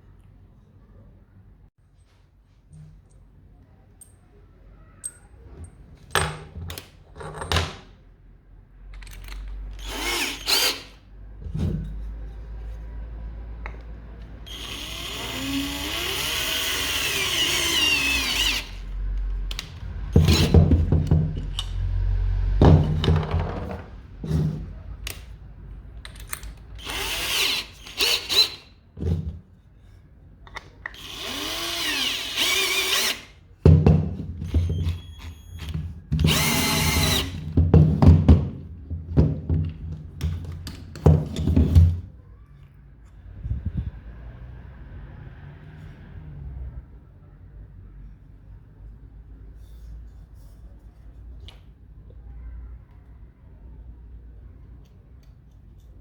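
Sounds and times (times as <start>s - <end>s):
electric power tool motor: 9.8s - 10.9s, 14.5s - 18.9s, 26.8s - 28.6s, 31.0s - 33.3s, 36.3s - 37.4s.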